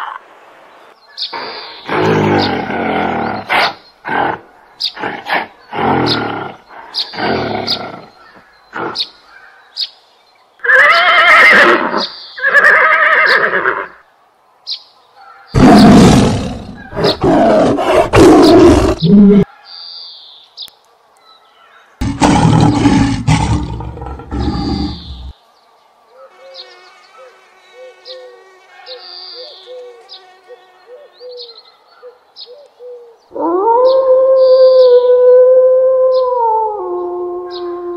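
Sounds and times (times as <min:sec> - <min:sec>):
lion roaring: 0:15.6 - 0:19.5, 0:22.0 - 0:25.3
long pitched animal calls: 0:22.0 - 0:25.3.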